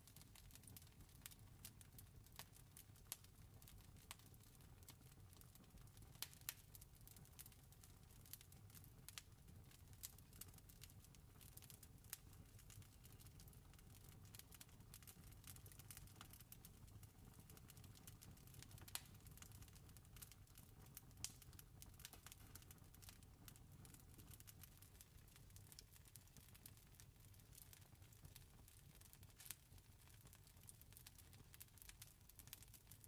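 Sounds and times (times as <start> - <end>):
campfire crackling: 11.4 - 16.5, 17.5 - 20.3, 21.2 - 26.8.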